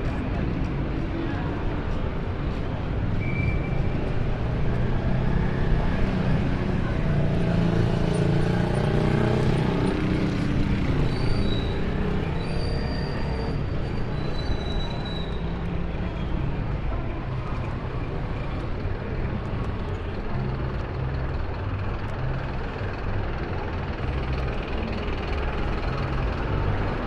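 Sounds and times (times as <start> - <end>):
passing vehicle engines rumbling: 0.0 - 27.0
faint high squeals: 11.0 - 15.7.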